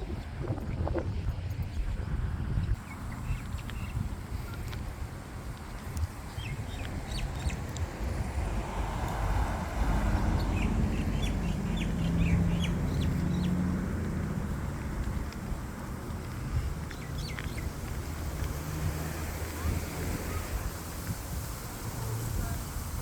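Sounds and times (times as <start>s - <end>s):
low outdoor rumble: 0.0s - 23.0s
birds chirping: 2.8s - 23.0s.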